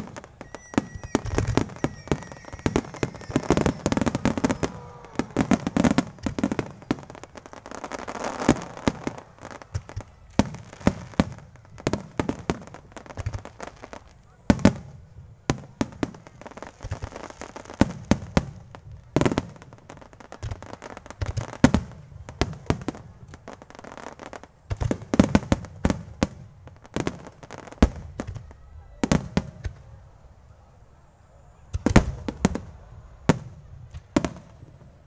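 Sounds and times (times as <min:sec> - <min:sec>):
small firework pops: 0:00.0 - 0:14.9, 0:15.5 - 0:30.0, 0:31.7 - 0:35.0
firework shells bursting: 0:00.4 - 0:11.0.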